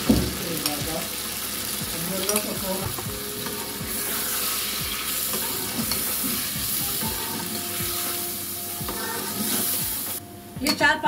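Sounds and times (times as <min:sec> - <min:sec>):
chicken sizzling in hot oil: 0:00.0 - 0:10.2
metal ladle striking pan: 0:04.9 - 0:08.2.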